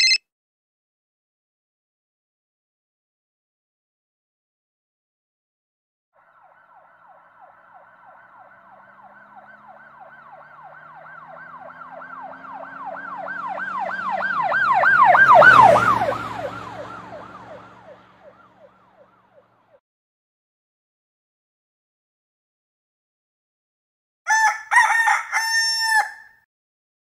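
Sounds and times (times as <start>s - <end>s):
police siren yelping: 6.2s - 19.5s.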